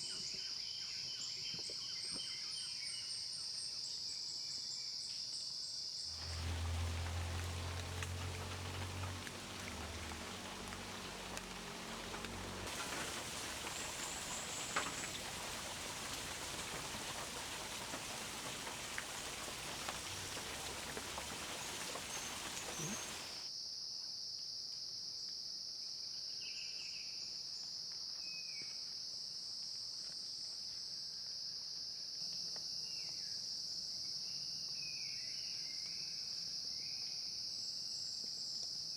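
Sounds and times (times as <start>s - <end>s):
even hiss: 6.1s - 23.5s
bird chirps: 6.2s - 23.4s.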